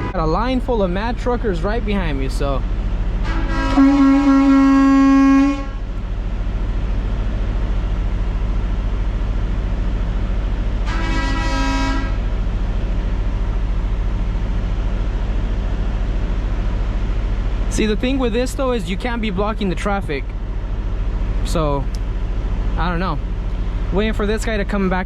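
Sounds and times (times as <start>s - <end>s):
truck diesel engine idling: 0.0s - 25.0s
vehicle horn honking: 3.2s - 5.8s, 10.8s - 12.2s.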